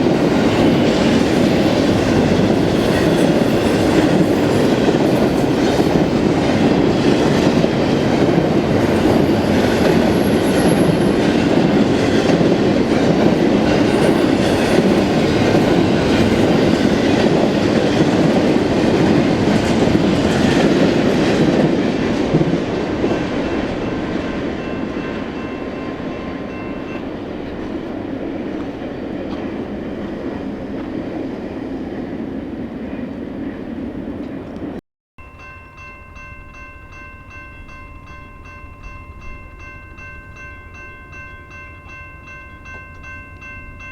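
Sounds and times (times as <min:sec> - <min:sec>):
clickety-clack at rail joints: 0:00.0 - 0:34.8
train wheels rumbling on rails: 0:00.0 - 0:34.8.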